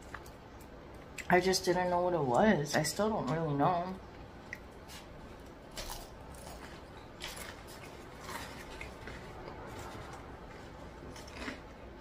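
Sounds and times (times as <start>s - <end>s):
chewing food: 4.1s - 12.0s
soft crisp crunches: 4.5s - 11.8s.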